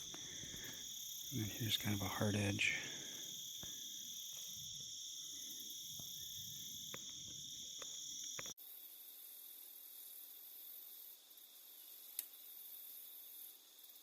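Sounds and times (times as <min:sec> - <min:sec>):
faint ticks: 0:00.0 - 0:01.8, 0:03.6 - 0:08.6, 0:12.1 - 0:12.3
crickets and insects trilling: 0:00.0 - 0:14.0.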